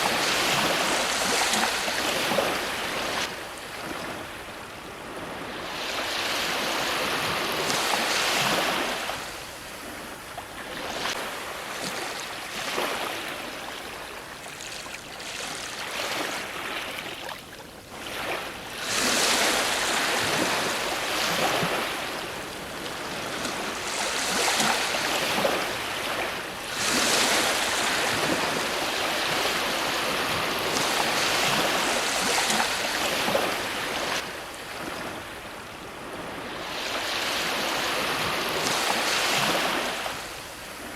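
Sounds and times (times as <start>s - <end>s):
ocean waves breaking: 0.0s - 40.9s.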